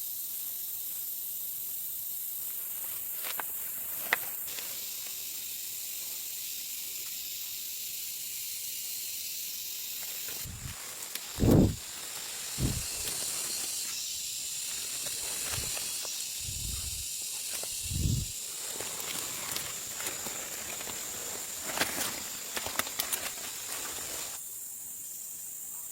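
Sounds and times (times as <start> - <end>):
forest ambience hiss: 0.0 - 25.9
dull low thumps: 11.4 - 11.8, 12.6 - 13.0.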